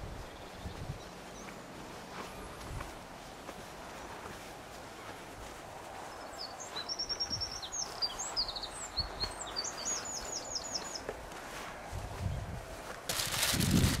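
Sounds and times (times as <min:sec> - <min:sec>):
songbird singing trills: 0:00.0 - 0:01.6, 0:06.0 - 0:11.1
outdoor background hiss: 0:00.0 - 0:14.0.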